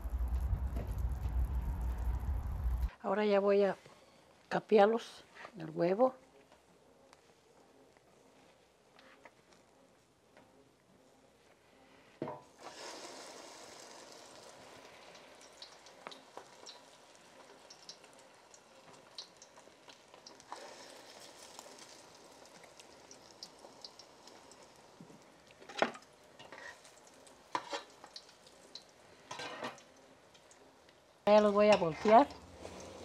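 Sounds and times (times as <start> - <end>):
food frying in hot oil: 12.6 - 33.0.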